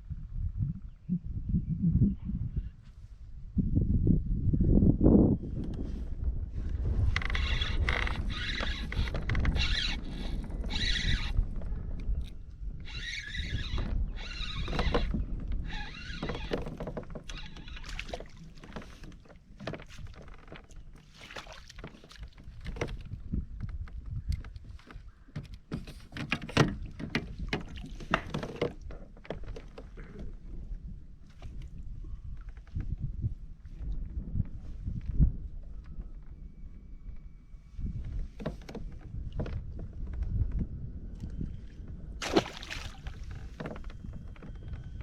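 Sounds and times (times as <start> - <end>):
wind rumbling on microphone: 0.0 - 45.0
paddle strokes splashing water: 15.8 - 22.5, 42.2 - 43.6.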